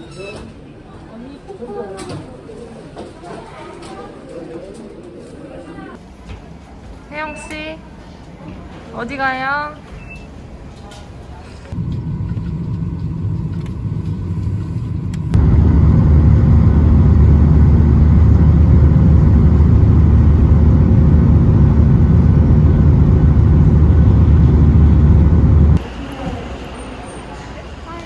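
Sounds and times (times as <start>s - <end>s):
car rumble while driving: 11.8s - 25.8s.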